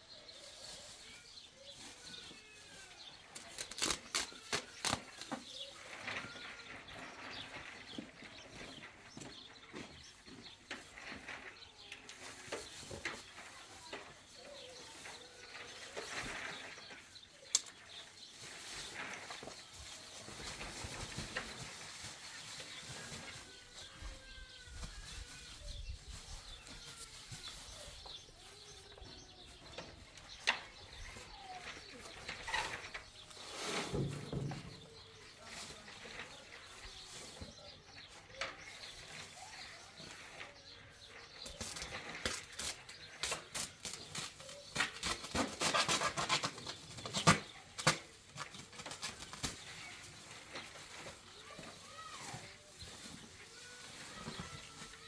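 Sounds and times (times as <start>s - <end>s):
rapid rustling and clicking: 3.3s - 24.2s, 38.0s - 55.0s.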